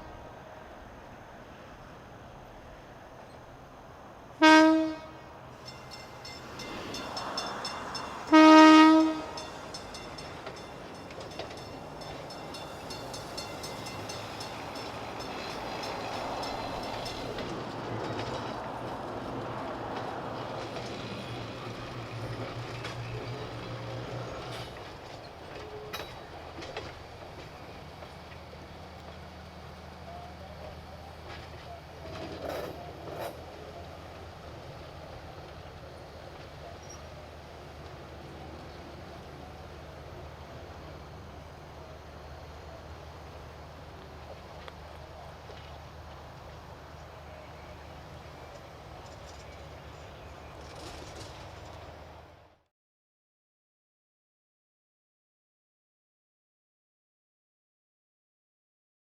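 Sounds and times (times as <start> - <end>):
train horn blasts: 4.4 - 5.4, 8.0 - 9.6
train wheels rumbling on rails: 5.0 - 52.6.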